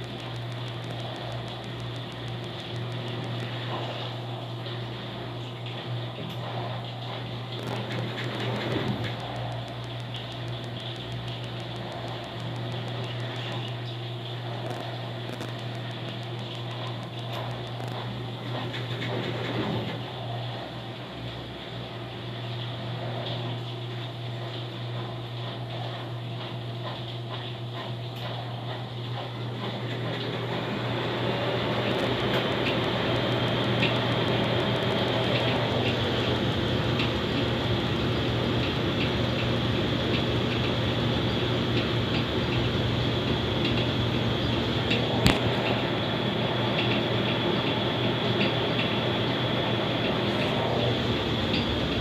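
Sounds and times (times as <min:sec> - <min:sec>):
light ticks: 0:00.0 - 0:04.0, 0:07.6 - 0:18.9
light irregular ticks: 0:00.0 - 0:20.6, 0:31.8 - 0:45.6
washing machine spinning: 0:00.0 - 0:52.0.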